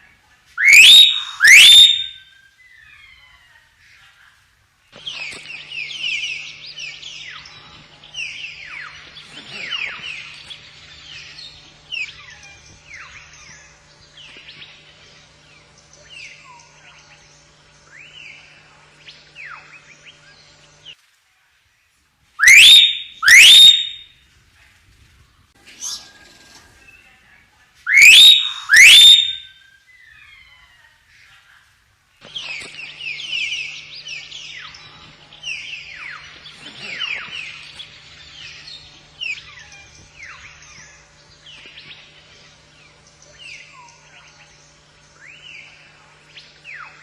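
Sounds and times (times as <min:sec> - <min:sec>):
faint steady hum: 0:00.0 - 0:47.0
myna bird whistling and chirping: 0:00.6 - 0:03.0, 0:22.4 - 0:24.1, 0:27.9 - 0:30.2.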